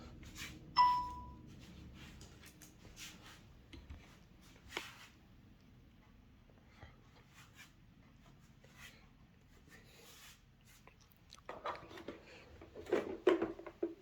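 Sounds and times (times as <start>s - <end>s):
plastic knocks and clatter: 11.5s - 14.0s
plastic parts clicking and rustling: 11.5s - 14.0s.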